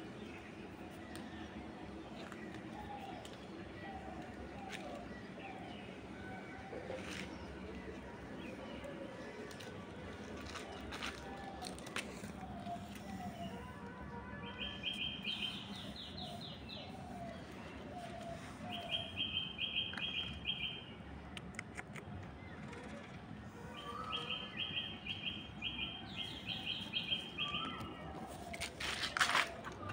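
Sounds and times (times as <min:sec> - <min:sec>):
steady background noise: 0:00.0 - 0:29.9
bird chirping: 0:23.8 - 0:28.1.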